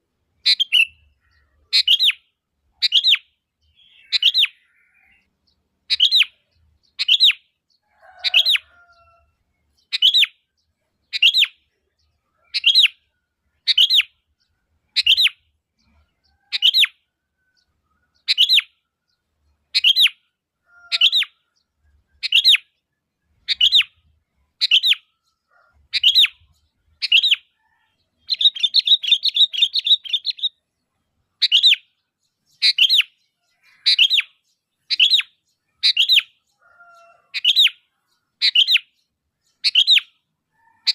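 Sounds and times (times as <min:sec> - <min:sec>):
bulbul calling: 0:00.4 - 0:05.3, 0:09.8 - 0:14.3, 0:14.9 - 0:17.0, 0:18.1 - 0:18.8, 0:19.7 - 0:21.6, 0:23.4 - 0:30.7, 0:31.3 - 0:40.9.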